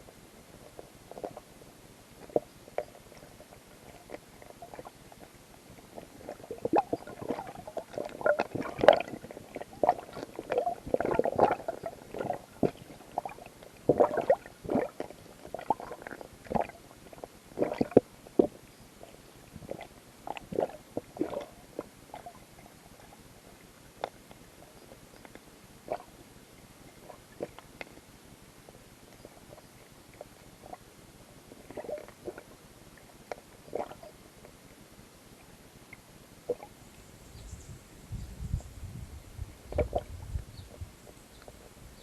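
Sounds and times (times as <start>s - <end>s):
underwater gurgling: 2.2s - 28.0s, 29.2s - 34.7s, 35.8s - 36.8s, 39.6s - 42.0s
underwater clicks and knocks: 39.7s - 40.3s.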